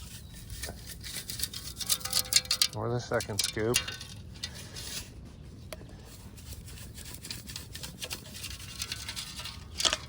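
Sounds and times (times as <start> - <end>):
metal scoop scraping ground: 0.0 - 5.2, 6.0 - 10.0.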